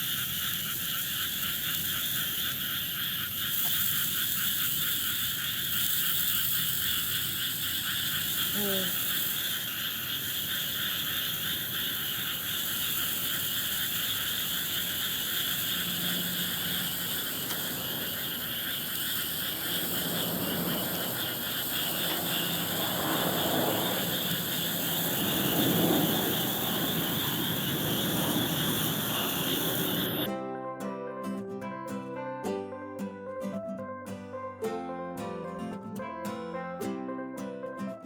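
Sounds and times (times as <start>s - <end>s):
frogs calling: 0.0s - 30.3s
insects trilling: 0.0s - 30.3s.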